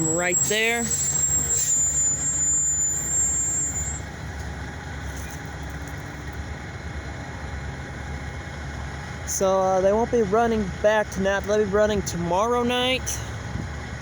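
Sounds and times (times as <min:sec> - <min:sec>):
thin high whine: 0:00.0 - 0:05.5
locomotive engines rumbling: 0:00.0 - 0:14.0.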